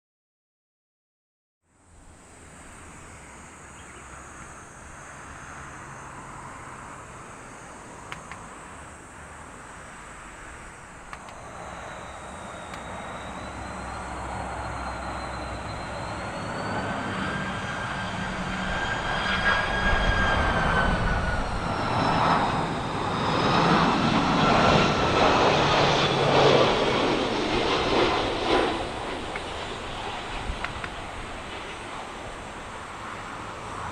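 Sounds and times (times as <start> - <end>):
high wavering engine whine: 1.7 - 33.9
jet engines on approach: 1.8 - 33.9.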